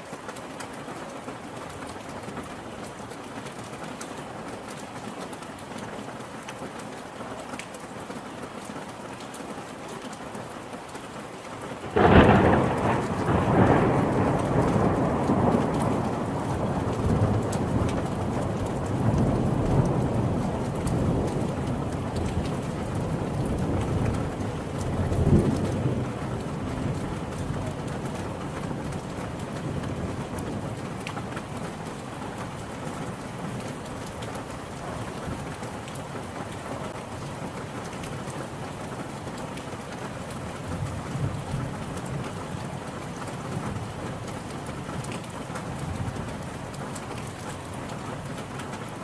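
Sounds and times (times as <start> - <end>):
steady rain: 0.0 - 49.0
thunder clap and rumble: 11.9 - 31.6.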